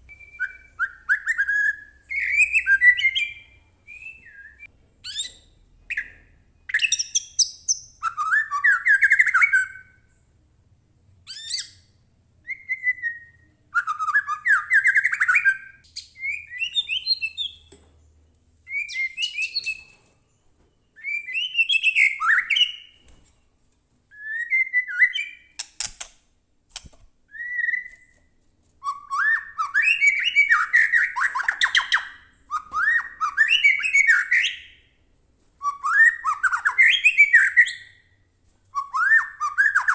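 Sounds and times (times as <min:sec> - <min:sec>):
bird singing whistled phrases: 0:00.0 - 0:10.0, 0:12.4 - 0:17.7, 0:18.7 - 0:20.0, 0:20.8 - 0:23.0, 0:24.2 - 0:25.6, 0:27.3 - 0:28.1, 0:28.8 - 0:34.8, 0:35.6 - 0:38.0, 0:38.8 - 0:39.9.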